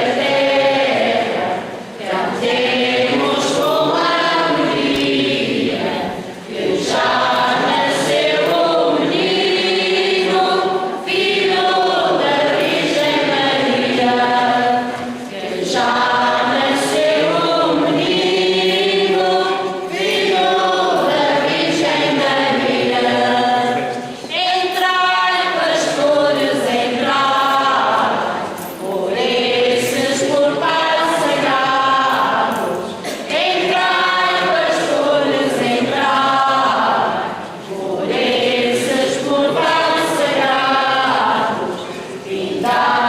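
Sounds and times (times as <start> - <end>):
church choir singing: 0.0 - 43.0.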